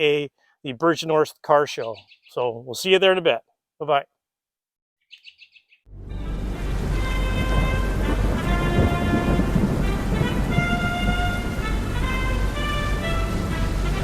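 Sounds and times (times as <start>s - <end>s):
high bird-like chirps: 1.8s - 2.4s, 5.0s - 5.9s
held musical notes: 5.9s - 14.0s
rain: 5.9s - 14.0s
thunder rumble: 5.9s - 14.0s.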